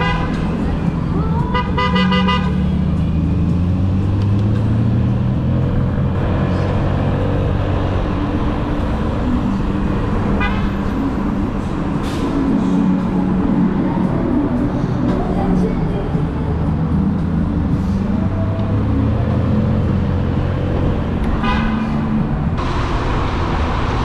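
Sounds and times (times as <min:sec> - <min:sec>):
engine drone: 0:00.0 - 0:24.0
road and wind noise: 0:00.0 - 0:24.0
vehicle horn honking: 0:01.5 - 0:02.6, 0:10.4 - 0:10.8, 0:21.4 - 0:22.0.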